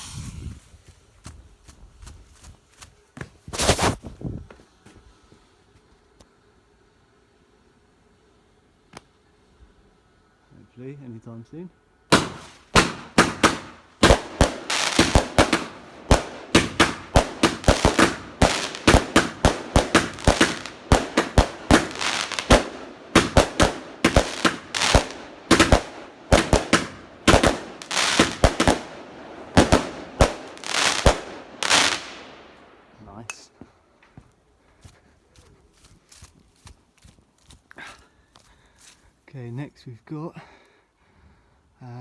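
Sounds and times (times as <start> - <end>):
volley of firework bangs: 12.1 - 32.7.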